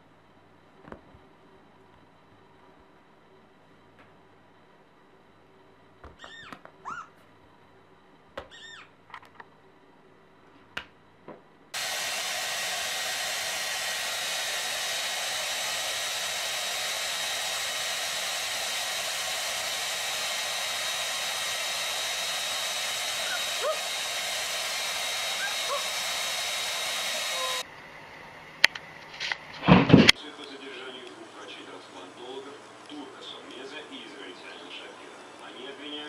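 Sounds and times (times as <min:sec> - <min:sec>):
hair dryer blowing: 0:11.8 - 0:27.7.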